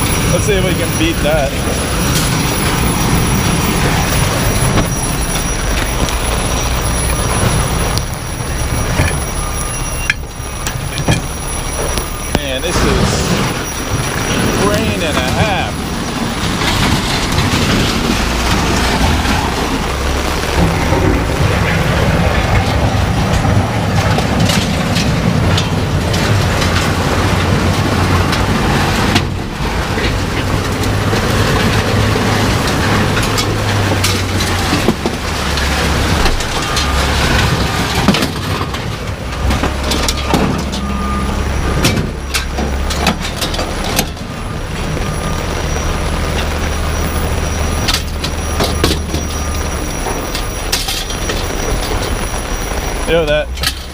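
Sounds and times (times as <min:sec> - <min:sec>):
high ringing alarm tone: 0:00.0 - 0:17.0, 0:39.8 - 0:42.9, 0:46.8 - 0:53.6
heavy rain pouring: 0:00.0 - 0:53.9
low engine hum: 0:00.0 - 0:53.9.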